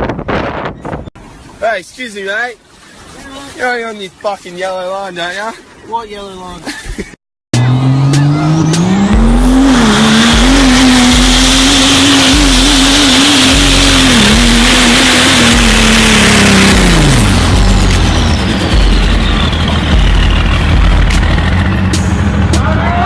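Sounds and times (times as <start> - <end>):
vehicle engine revving hard: 7.5 - 22.6.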